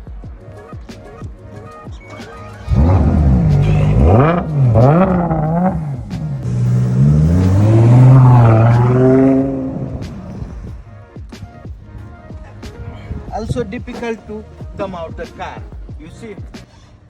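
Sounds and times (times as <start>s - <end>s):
car engine revving: 2.5s - 10.8s.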